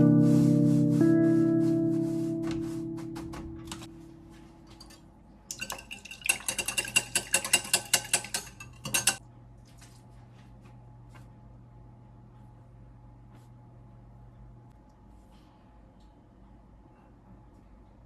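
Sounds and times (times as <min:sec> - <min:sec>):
background music: 0:00.0 - 0:04.4.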